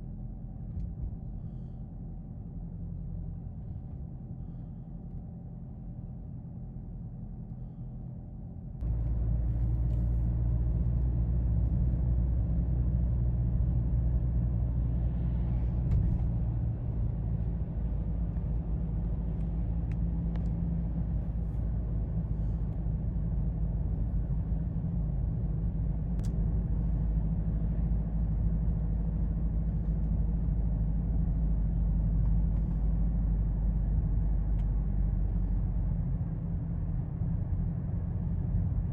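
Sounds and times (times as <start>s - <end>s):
car engine droning: 0.0s - 38.9s.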